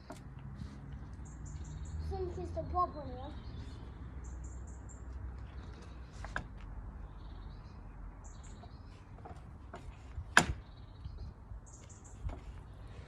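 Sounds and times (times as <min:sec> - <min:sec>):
high bird chirps: 0:01.2 - 0:05.2.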